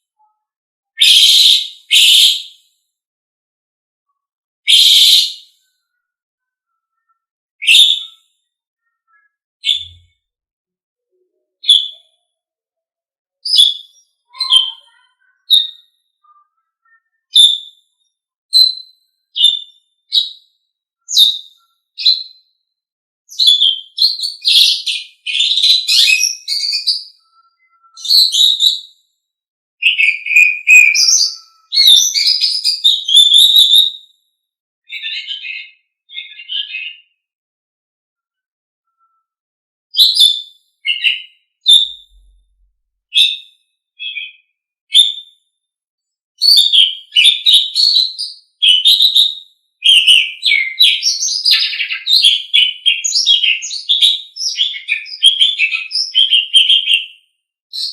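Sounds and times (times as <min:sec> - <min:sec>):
starling whistled calls: 0:01.0 - 0:02.5, 0:04.7 - 0:05.4, 0:07.6 - 0:08.2, 0:11.6 - 0:12.0, 0:13.4 - 0:15.9, 0:16.9 - 0:17.8, 0:18.5 - 0:20.4, 0:21.1 - 0:22.4, 0:23.3 - 0:28.8, 0:29.8 - 0:34.0, 0:40.0 - 0:42.2, 0:43.1 - 0:43.4, 0:46.4 - 0:57.1
starling chattering song: 0:13.5 - 0:17.5, 0:29.8 - 0:33.6.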